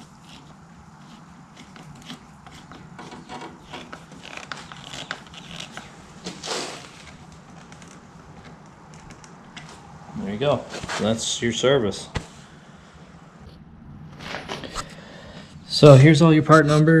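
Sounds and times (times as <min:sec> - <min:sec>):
loud brushing rush: 0:00.0 - 0:07.1
hands rubbing and scraping parts: 0:00.0 - 0:09.9, 0:10.6 - 0:11.4.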